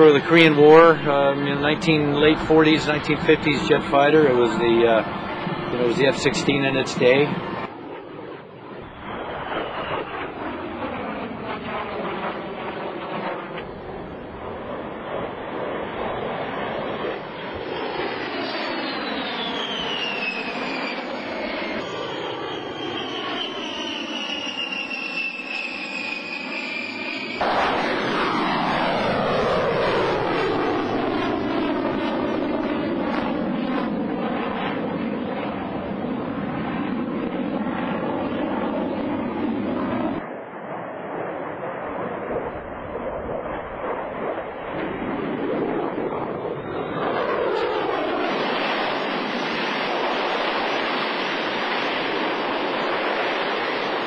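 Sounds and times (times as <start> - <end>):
jet aircraft flying past: 0.0 - 54.0.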